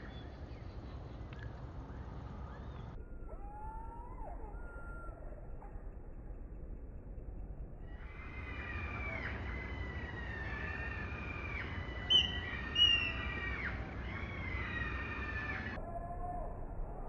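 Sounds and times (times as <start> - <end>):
bird whistles swooping downward: 7.9 - 15.8
sharp high bird chirps: 8.1 - 15.8.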